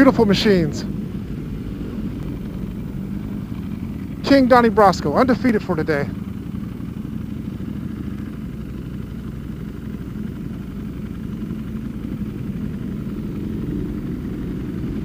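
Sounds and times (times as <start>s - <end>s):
vehicle engine low rumble: 0.0s - 15.0s.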